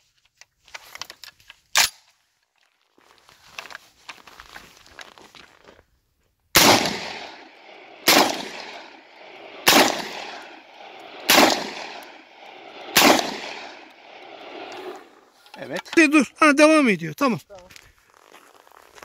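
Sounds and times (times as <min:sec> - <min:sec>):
shotgun shots: 0:06.6 - 0:15.0.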